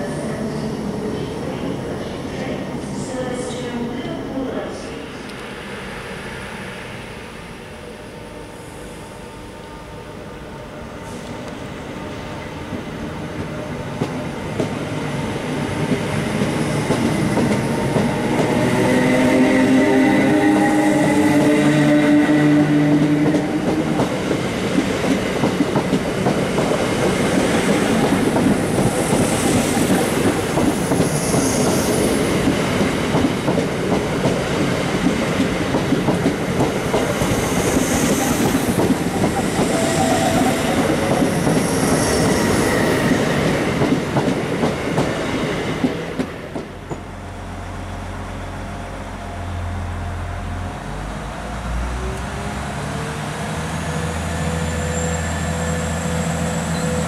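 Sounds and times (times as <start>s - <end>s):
high wheel squeal: 39.4s - 43.3s, 54.5s - 57.0s.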